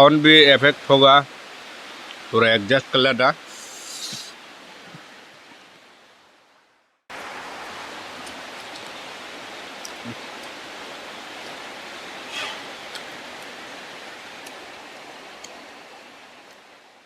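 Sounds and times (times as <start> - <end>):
heavy rain hissing: 0.0 - 5.8, 7.1 - 17.0.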